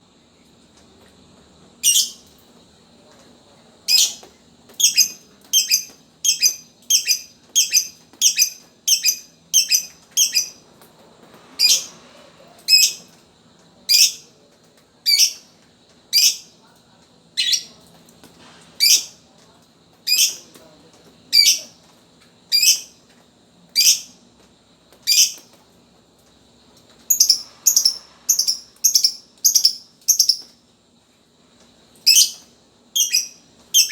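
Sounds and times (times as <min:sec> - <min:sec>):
lovebird high-pitched calls: 0:01.8 - 0:02.2, 0:03.9 - 0:04.2, 0:04.8 - 0:10.6, 0:11.6 - 0:12.0, 0:12.6 - 0:13.1, 0:13.9 - 0:14.2, 0:15.1 - 0:15.4, 0:16.1 - 0:16.5, 0:17.4 - 0:17.7, 0:18.8 - 0:19.2, 0:20.1 - 0:20.4, 0:21.3 - 0:21.8, 0:22.5 - 0:22.9, 0:23.8 - 0:24.1, 0:25.1 - 0:25.4, 0:27.1 - 0:30.5, 0:32.0 - 0:33.9.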